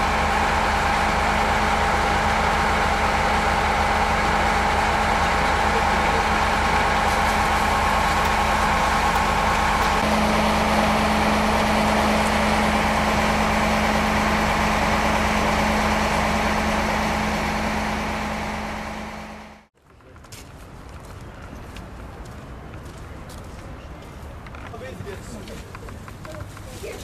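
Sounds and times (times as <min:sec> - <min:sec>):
fire truck engine running: 0:00.0 - 0:19.7.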